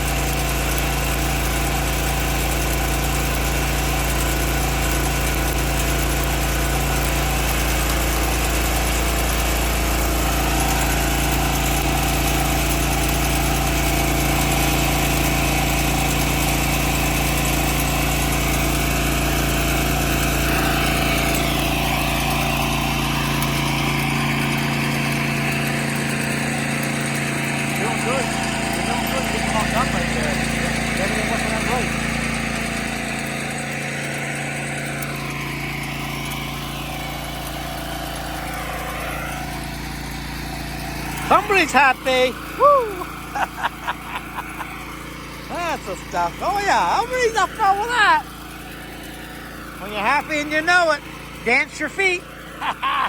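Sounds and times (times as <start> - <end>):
engine idling: 0.0 - 53.0.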